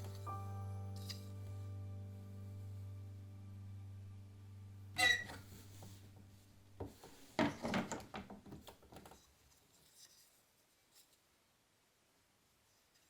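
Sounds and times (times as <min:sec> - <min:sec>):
wooden loom knocks and rubbing: 0:06.8 - 0:09.2.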